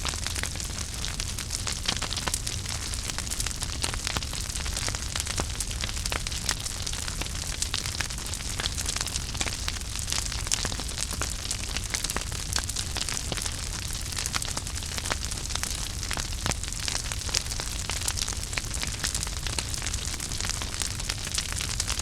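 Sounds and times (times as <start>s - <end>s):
low rumble of flames: 0.0s - 22.0s
wood fire crackling and popping: 0.0s - 22.0s.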